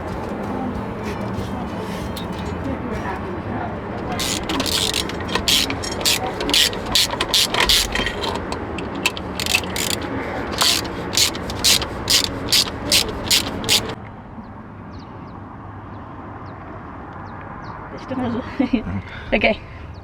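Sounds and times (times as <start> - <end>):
ratchet wrench clicking: 4.2 - 14.0.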